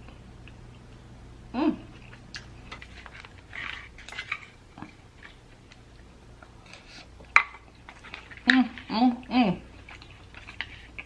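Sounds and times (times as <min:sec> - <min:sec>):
soft chewing: 0:00.0 - 0:01.2, 0:01.8 - 0:11.0.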